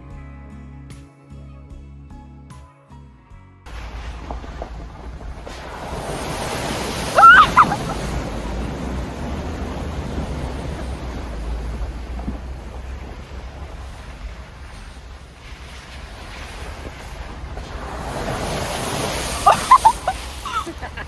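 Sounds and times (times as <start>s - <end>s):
heavy rain: 3.7s - 21.0s
wind on microphone: 3.7s - 21.0s
loud pitched cry: 7.1s - 8.1s, 19.4s - 20.2s.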